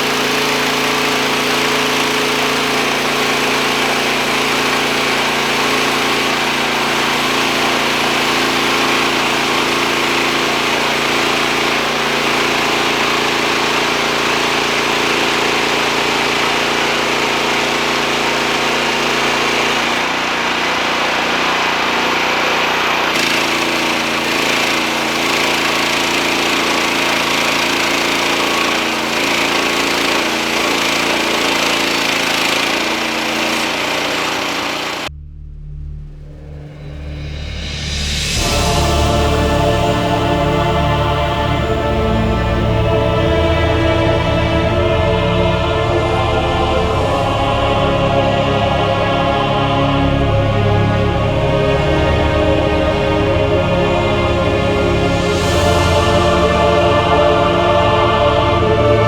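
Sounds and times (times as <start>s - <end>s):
band sawmill running: 0.0s - 59.0s.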